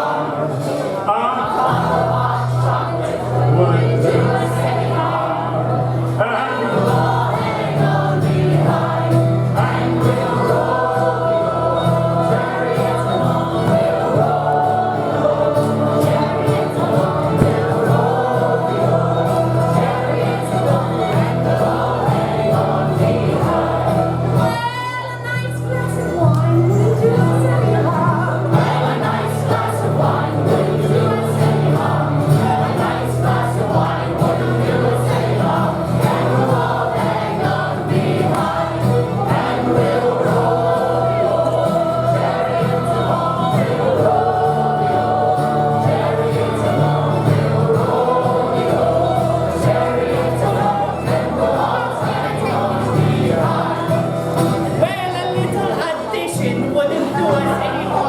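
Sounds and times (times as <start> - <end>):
voices singing in chorus: 0.0 - 58.0
steady low notes: 13.8 - 24.0.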